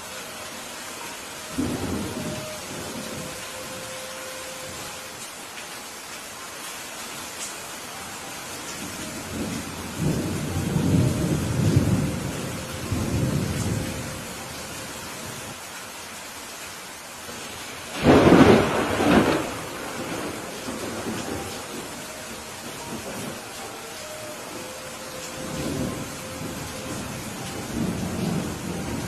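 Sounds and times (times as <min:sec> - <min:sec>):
steady rain: 0:00.0 - 0:29.0
rolling thunder rumble: 0:17.9 - 0:23.4, 0:25.3 - 0:29.0.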